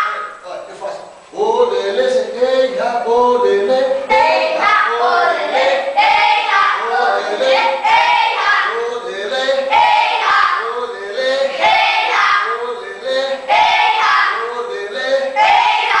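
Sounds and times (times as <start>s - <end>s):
children singing a chant: 3.9s - 16.0s.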